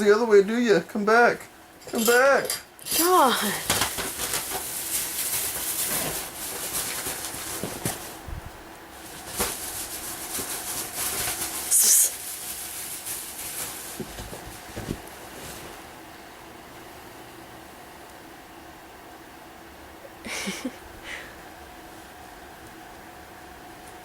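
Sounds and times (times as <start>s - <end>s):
bedding rustling: 3.0s - 16.3s.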